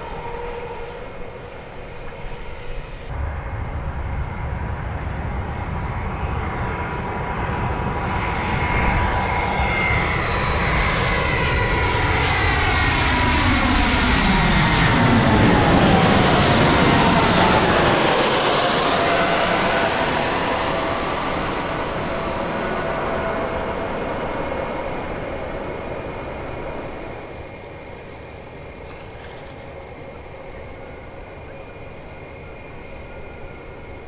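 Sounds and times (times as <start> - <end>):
jet airliner engines passing: 0.0 - 34.0.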